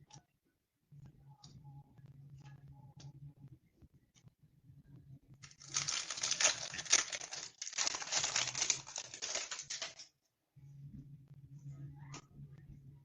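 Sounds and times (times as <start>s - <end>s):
foil wrapper crinkling: 5.4s - 10.0s.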